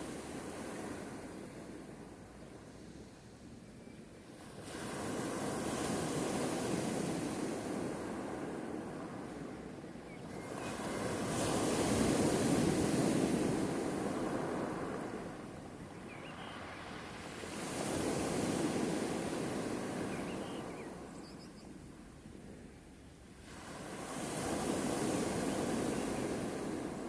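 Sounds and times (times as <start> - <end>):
sea waves surging: 0.0 - 2.2, 10.5 - 21.1, 23.4 - 27.0.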